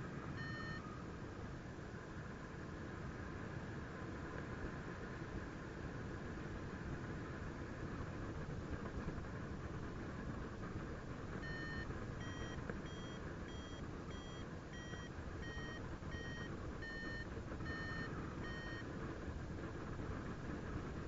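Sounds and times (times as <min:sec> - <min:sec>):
variometer beeping: 0:00.3 - 0:00.8, 0:11.4 - 0:18.9.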